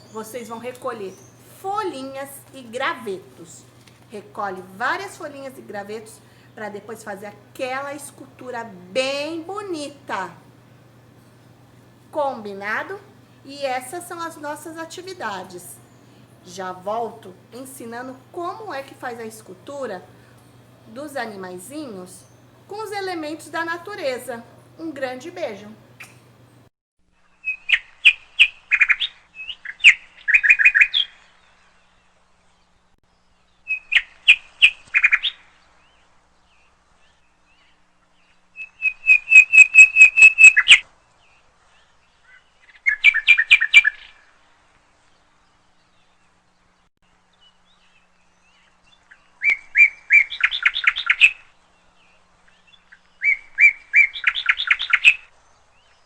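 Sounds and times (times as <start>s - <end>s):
songbird chirping: 0.0s - 26.7s, 27.4s - 56.0s.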